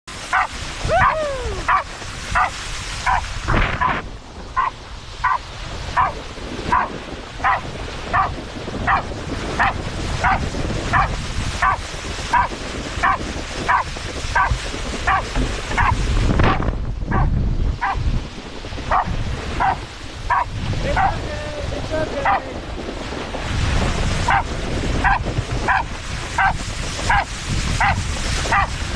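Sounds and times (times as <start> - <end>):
dog barking: 0.3 - 4.0, 4.6 - 5.4, 6.0 - 18.0, 18.9 - 21.1, 22.2 - 22.4, 24.3 - 28.8
dog whining: 0.4 - 1.8.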